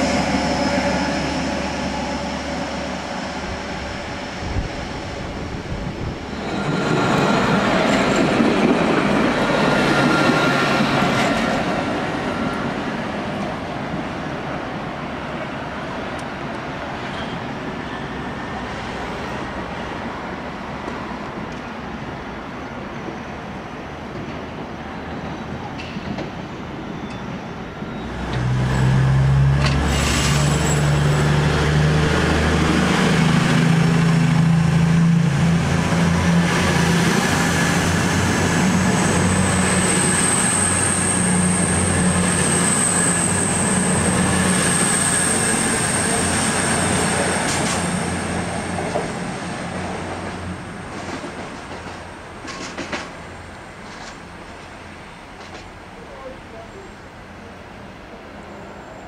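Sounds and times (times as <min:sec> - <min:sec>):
train rumble: 0:00.0 - 0:14.7, 0:25.6 - 0:58.2
low drone of traction units: 0:25.7 - 0:56.0.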